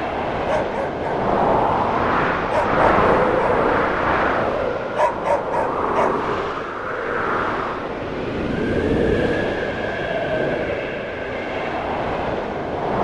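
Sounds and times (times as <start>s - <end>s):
snowstorm wind gusting: 0.0s - 13.0s
distant dog barking: 0.4s - 1.4s, 2.4s - 3.9s, 4.8s - 6.4s.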